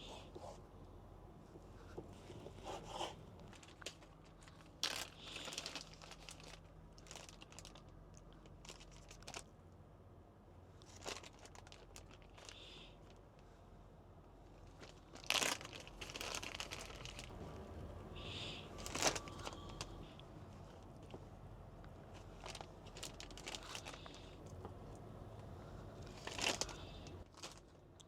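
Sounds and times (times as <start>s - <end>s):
plastic packaging crinkling: 2.5s - 9.5s, 10.9s - 12.6s, 14.7s - 17.4s, 18.4s - 20.1s, 22.0s - 24.4s, 26.0s - 27.8s.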